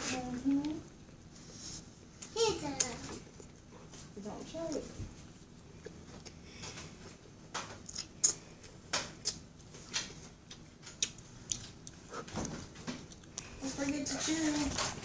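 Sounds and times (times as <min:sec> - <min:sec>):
child chewing beans: 0:00.6 - 0:04.1, 0:04.7 - 0:15.0.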